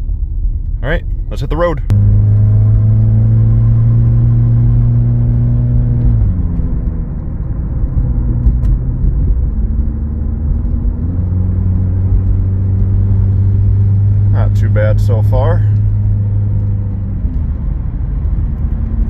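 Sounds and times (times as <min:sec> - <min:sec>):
car engine pulling away: 0:01.9 - 0:19.0.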